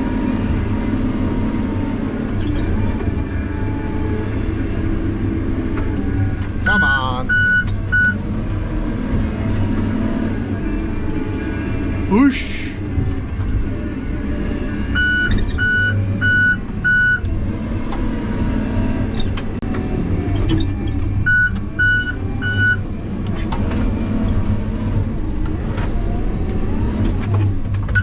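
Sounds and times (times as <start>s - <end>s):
heavy equipment engine running: 0.0s - 28.0s
backup alarm beeping: 6.8s - 8.2s.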